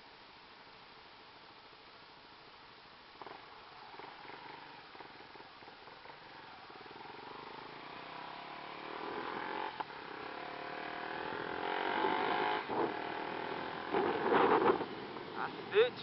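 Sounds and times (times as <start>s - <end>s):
motorcycle engine accelerating: 3.2s - 15.9s.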